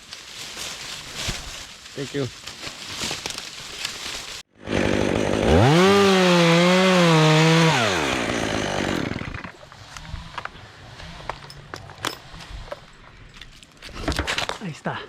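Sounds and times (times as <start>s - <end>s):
chainsaw revving: 4.6s - 9.6s.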